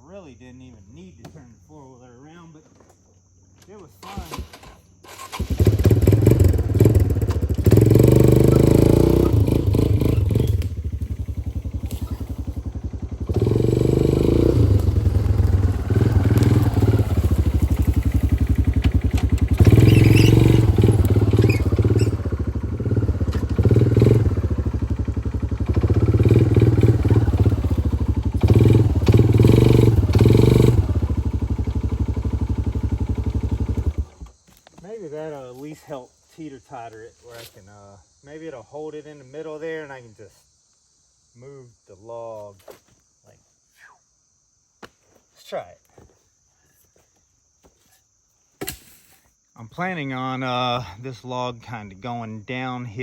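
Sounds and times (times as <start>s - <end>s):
atv engine under throttle: 4.0s - 34.4s.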